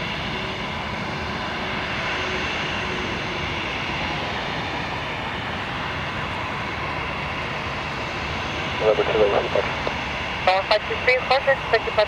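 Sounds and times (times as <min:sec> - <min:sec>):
jet engine roar: 0:00.0 - 0:12.0.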